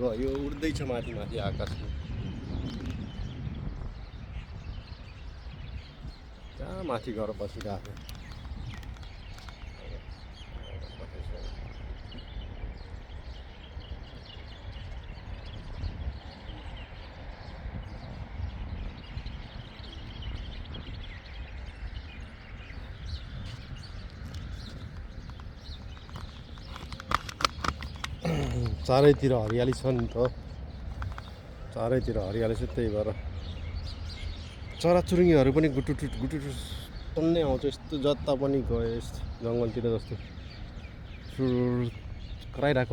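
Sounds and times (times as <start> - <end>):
small birds chirping: 0.0 - 42.9
sharp clicks: 7.5 - 9.8, 24.1 - 31.4.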